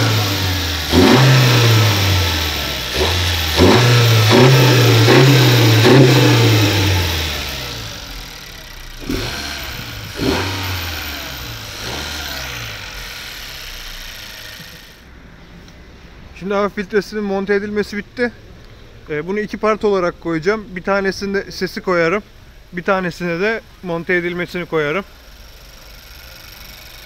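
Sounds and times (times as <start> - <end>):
car engine revving in blips: 0.0 - 14.8.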